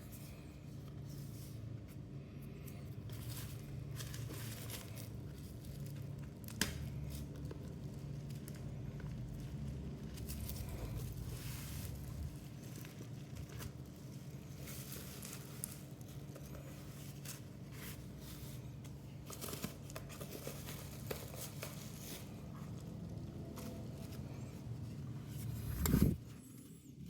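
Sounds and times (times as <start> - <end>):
steady low hum: 6.9 - 27.0
packaging crinkling and tearing: 19.1 - 24.5.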